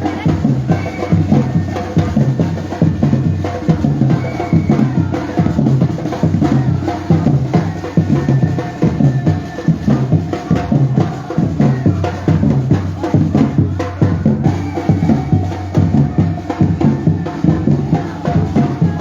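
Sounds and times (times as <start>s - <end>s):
percussion ensemble drumming: 0.0s - 19.0s.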